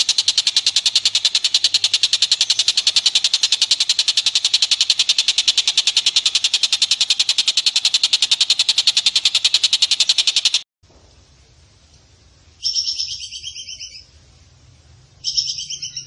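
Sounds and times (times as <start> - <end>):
rapid high-pitched call notes: 0.0 - 10.6.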